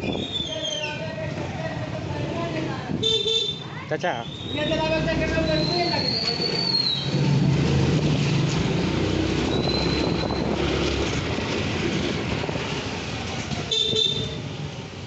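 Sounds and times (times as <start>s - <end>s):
rumbling traffic noise: 0.0s - 15.0s
vehicle horn: 3.0s - 3.6s, 13.7s - 14.5s.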